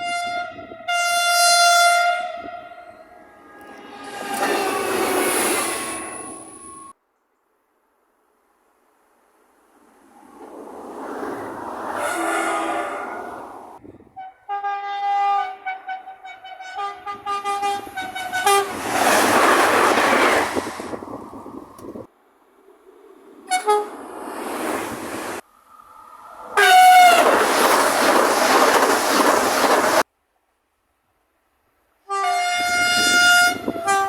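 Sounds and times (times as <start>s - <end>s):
train horn blasts: 0.0s - 5.3s, 12.0s - 13.3s, 14.1s - 18.8s, 23.5s - 24.0s, 26.6s - 27.3s, 32.0s - 34.0s
train passing: 0.8s - 7.0s, 8.4s - 30.1s.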